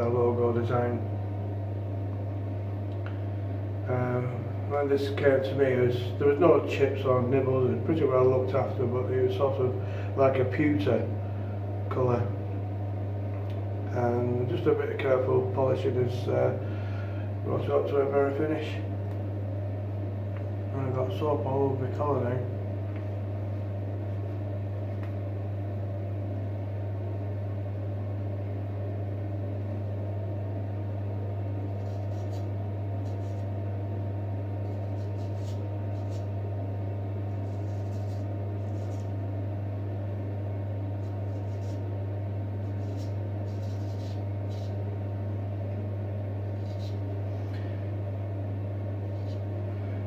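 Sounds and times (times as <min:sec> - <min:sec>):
low electrical hum: 0:00.0 - 0:50.0
razor scraping stubble: 0:31.6 - 0:33.5, 0:34.6 - 0:36.4, 0:37.3 - 0:39.2, 0:41.0 - 0:41.9, 0:42.6 - 0:44.8.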